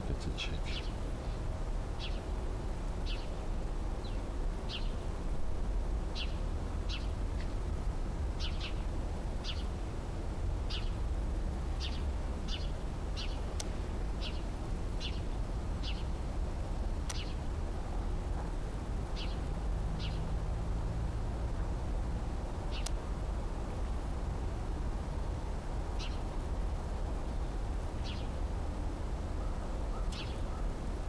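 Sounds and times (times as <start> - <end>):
low outdoor rumble: 0.0 - 31.0
bird chirping: 0.4 - 1.4, 2.0 - 2.3, 3.0 - 3.4, 4.0 - 5.0, 6.2 - 7.5, 8.4 - 8.8, 9.4 - 9.7, 10.7 - 11.0, 11.8 - 13.4, 14.2 - 16.1, 17.1 - 17.4, 19.2 - 20.2, 22.7 - 23.0, 26.0 - 26.3, 28.0 - 28.4, 29.4 - 30.7.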